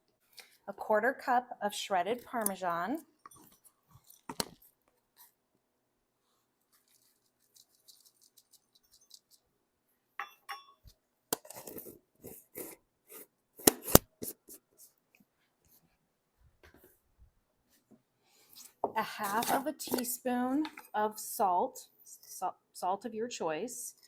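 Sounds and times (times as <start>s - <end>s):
dishes clinking: 10.2s - 10.8s.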